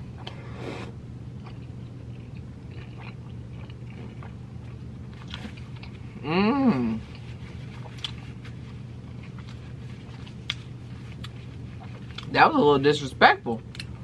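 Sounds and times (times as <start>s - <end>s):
chewing taco: 1.4s - 12.4s
person humming: 6.2s - 7.1s.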